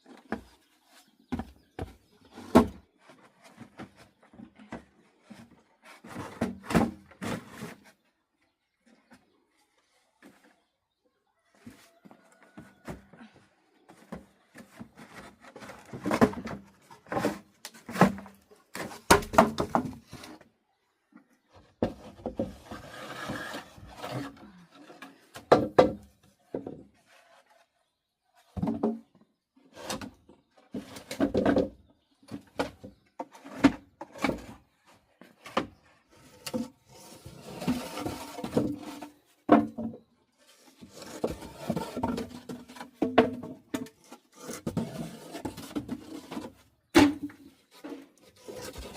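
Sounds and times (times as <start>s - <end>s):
scraping and rustling: 32.3s - 39.5s, 40.4s - 48.9s.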